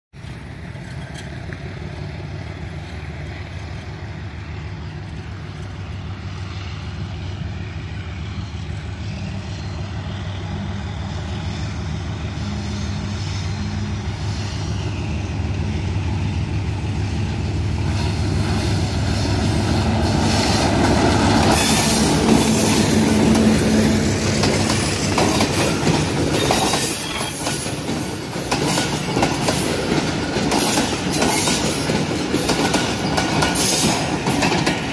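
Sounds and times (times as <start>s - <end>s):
diesel locomotive engine drone: 0.2s - 34.9s
coach wheels clattering on rails: 16.8s - 34.9s.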